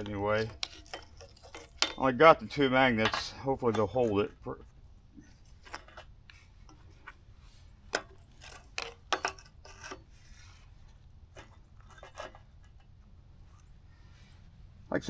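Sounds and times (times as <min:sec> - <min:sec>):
metal pieces clinking: 0:00.0 - 0:03.9.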